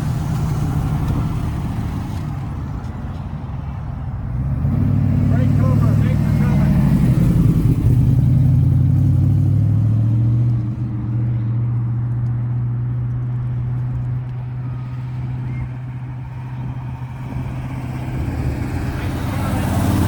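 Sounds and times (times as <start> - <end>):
car engine driving past: 4.3 - 20.0.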